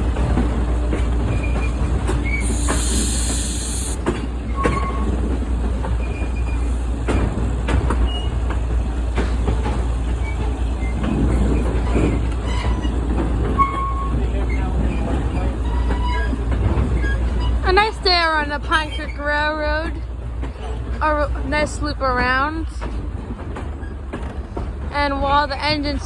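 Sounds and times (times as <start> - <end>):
train rumbling on track: 0.0 - 26.0
high wheel squeals: 2.2 - 5.1
burst of hiss: 2.4 - 4.0.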